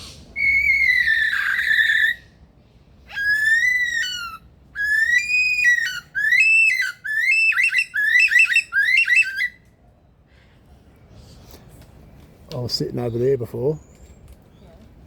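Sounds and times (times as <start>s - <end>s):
lyrebird whistling and warbling: 0.0s - 2.3s, 3.1s - 9.6s.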